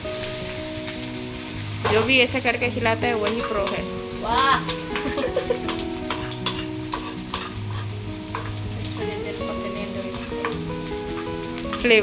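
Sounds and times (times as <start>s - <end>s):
onions sizzling in oil: 0.0s - 12.0s
spoon clicking against pan: 3.2s - 8.6s, 10.1s - 12.0s.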